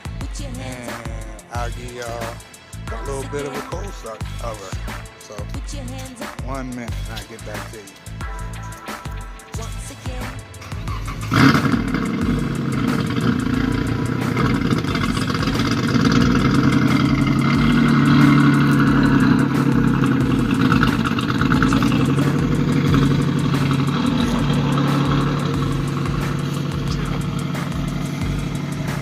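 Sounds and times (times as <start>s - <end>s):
car engine idling: 0.0s - 29.0s
car engine starting: 0.0s - 29.0s.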